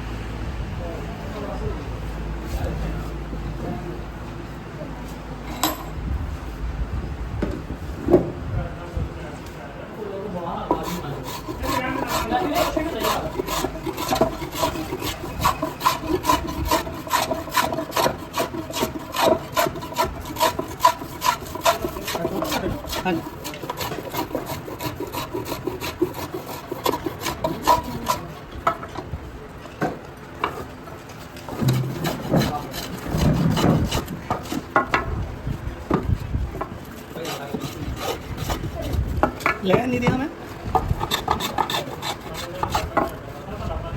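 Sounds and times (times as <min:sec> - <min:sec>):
person speaking: 0:10.2 - 0:13.6
hand tool rasping wooden bat: 0:10.6 - 0:29.0, 0:31.4 - 0:35.2, 0:35.8 - 0:43.3.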